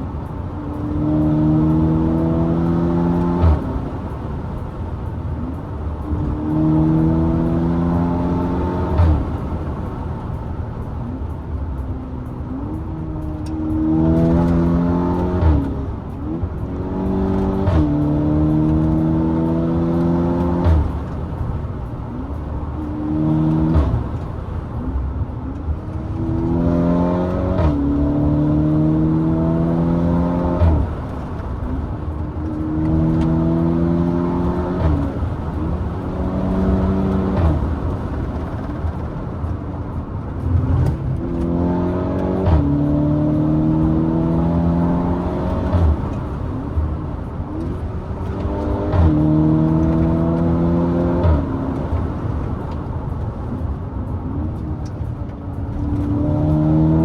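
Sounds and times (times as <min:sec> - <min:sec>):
car engine accelerating hard: 0:00.0 - 0:57.0
exhaust cracks: 0:25.7 - 0:53.6.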